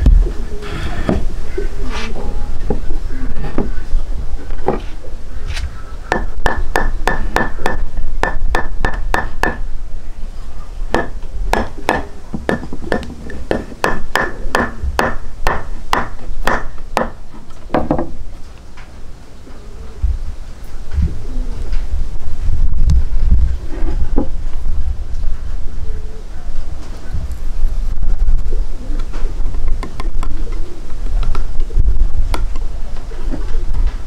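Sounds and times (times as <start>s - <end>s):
steady low rumble: 20.0s - 29.8s.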